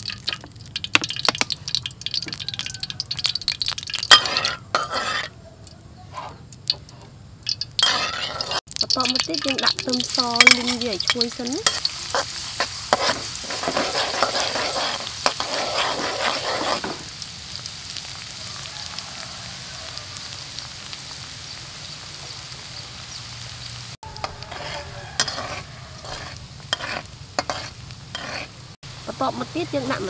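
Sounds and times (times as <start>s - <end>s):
garlic sizzling in hot oil: 0.0s - 30.0s
metal spatula scraping wok: 1.1s - 17.1s, 24.0s - 28.7s.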